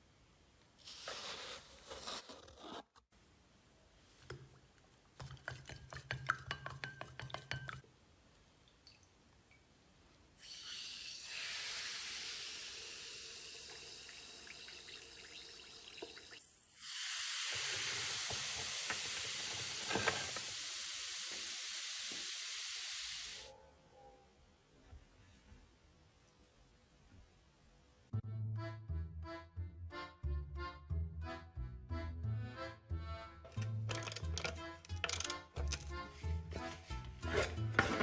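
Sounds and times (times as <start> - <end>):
hissing spray: 16.8 - 23.5.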